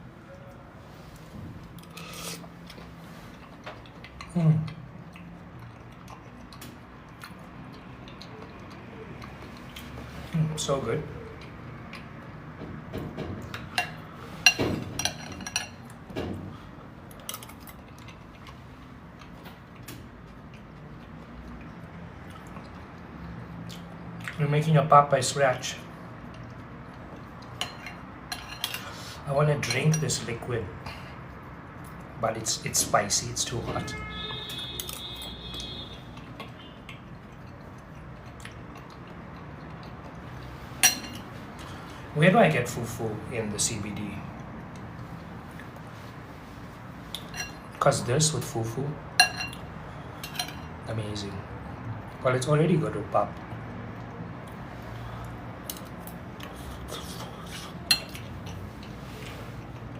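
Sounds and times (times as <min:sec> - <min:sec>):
cutlery clinking against a dish: 0:13.4 - 0:16.0, 0:27.6 - 0:29.0, 0:40.8 - 0:41.3, 0:47.2 - 0:47.7, 0:49.2 - 0:49.6, 0:50.2 - 0:50.8, 0:56.9 - 0:59.0
mouth sounds eating: 0:53.4 - 0:58.4.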